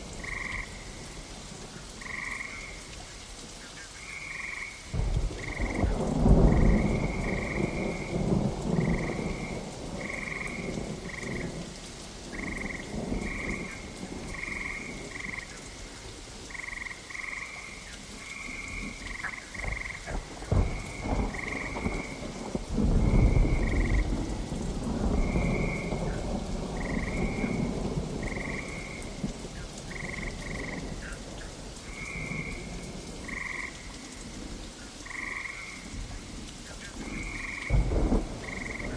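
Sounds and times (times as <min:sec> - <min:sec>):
steady rain: 0:00.0 - 0:38.9
frogs calling: 0:00.1 - 0:11.7, 0:12.3 - 0:24.2, 0:25.0 - 0:34.2, 0:35.0 - 0:38.9
thunder rumbling: 0:04.9 - 0:15.7, 0:18.2 - 0:36.2, 0:37.0 - 0:38.9.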